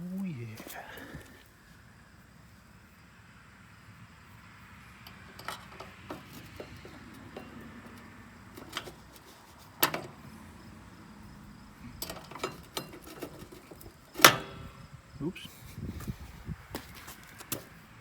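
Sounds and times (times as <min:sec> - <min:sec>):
metallic clinks of tools and parts: 0:05.0 - 0:10.3, 0:11.9 - 0:14.8.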